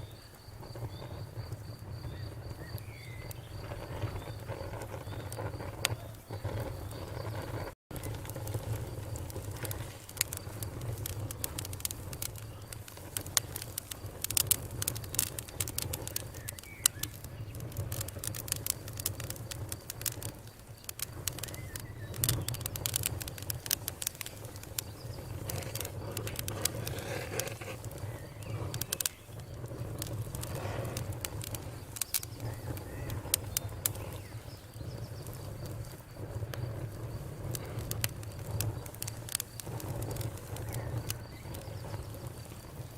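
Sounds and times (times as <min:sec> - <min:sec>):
campfire crackling: 0:00.0 - 0:42.9.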